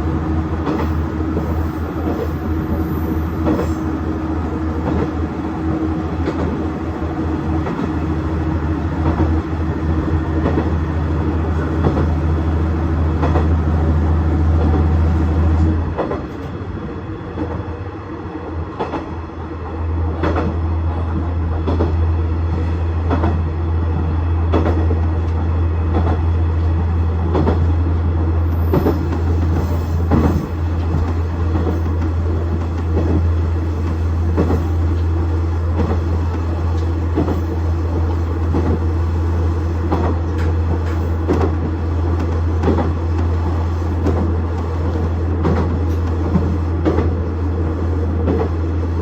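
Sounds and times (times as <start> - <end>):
diesel railcar engine drone: 0.0 - 49.0
wheels clicking over rail joints: 39.8 - 48.6.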